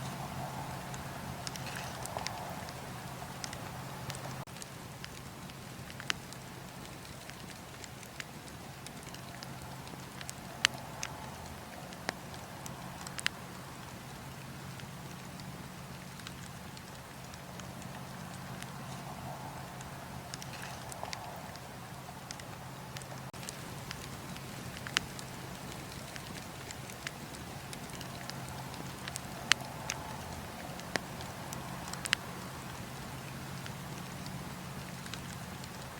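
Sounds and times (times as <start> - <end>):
steady low rumble: 0.0 - 7.8, 8.4 - 35.9
campfire crackling: 0.0 - 35.9
fire pops and snaps: 0.1 - 35.9.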